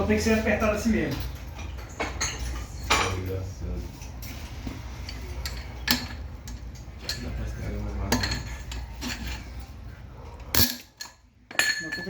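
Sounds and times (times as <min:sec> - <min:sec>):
metal tools clinking on engine: 0:10.5 - 0:12.0.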